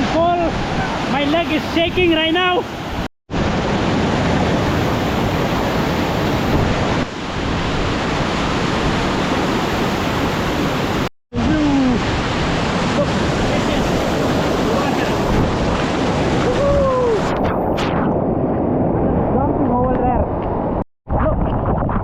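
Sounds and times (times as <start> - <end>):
waterfall rushing: 4.4 - 17.3.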